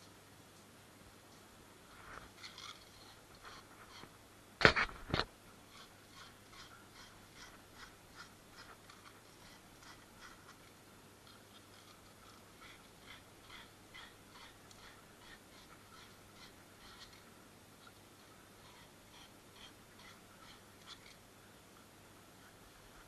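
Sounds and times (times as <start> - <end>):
scraping strokes on a pipe: 1.9 - 17.3, 18.6 - 21.2.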